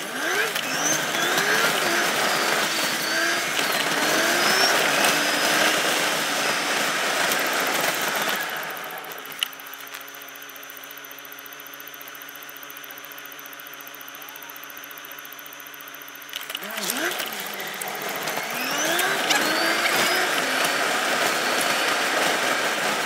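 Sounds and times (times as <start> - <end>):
car engine and road noise: 0.0 - 10.2, 16.2 - 23.0
sharp click: 16.2 - 17.9.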